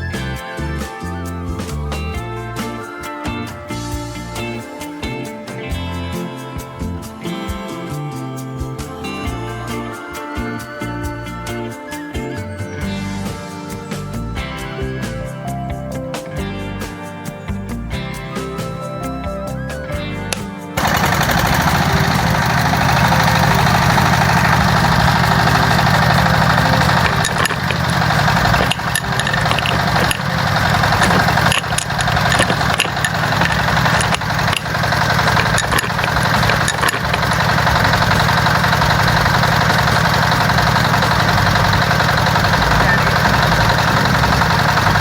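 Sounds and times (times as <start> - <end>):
music: 0.0 - 45.0
engine running: 20.1 - 45.0
clicks and knocks: 26.8 - 38.2.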